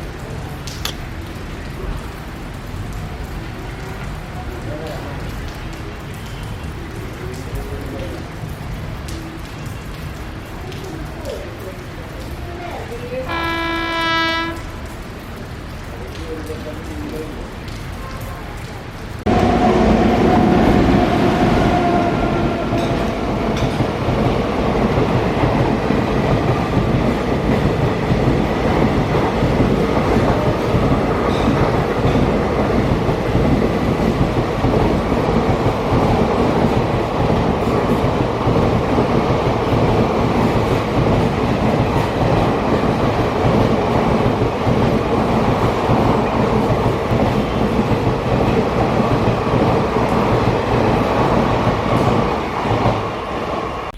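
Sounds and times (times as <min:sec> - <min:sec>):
train wheels rumbling on rails: 0:19.2 - 0:53.9.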